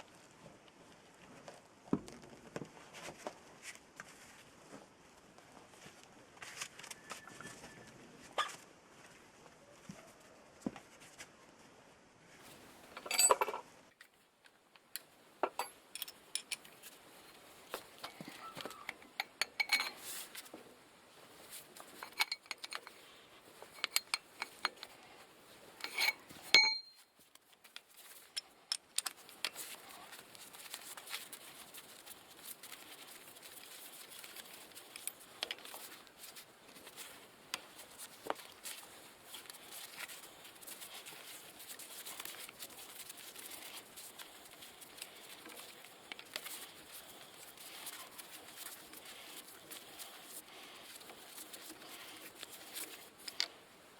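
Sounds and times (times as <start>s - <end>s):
metal tools clinking and knocking: 12.9s - 13.6s, 15.4s - 16.9s, 18.0s - 20.2s, 21.8s - 23.0s, 23.6s - 25.0s, 25.8s - 27.0s.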